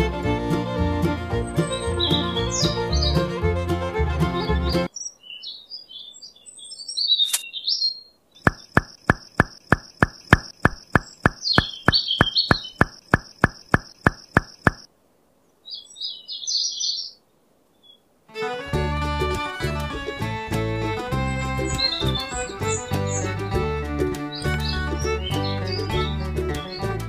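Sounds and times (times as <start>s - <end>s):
small birds chirping: 1.4s - 3.4s, 4.4s - 18.1s, 20.8s - 27.0s
regular ticks: 8.4s - 14.9s.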